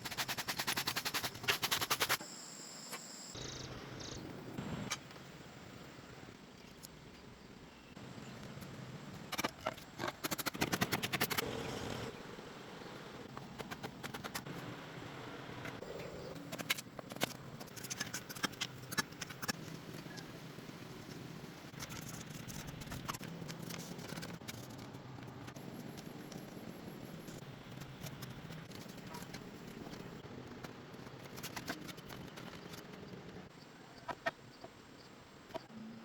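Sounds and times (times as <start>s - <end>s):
sharp clicks and snips: 9.3s - 11.4s, 13.3s - 14.6s, 15.6s - 20.3s, 21.7s - 26.5s.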